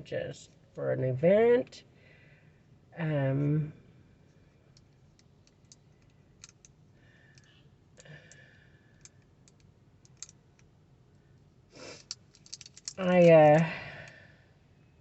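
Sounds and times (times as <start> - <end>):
faint light clicks of beads: 4.3 - 10.7, 11.3 - 14.2.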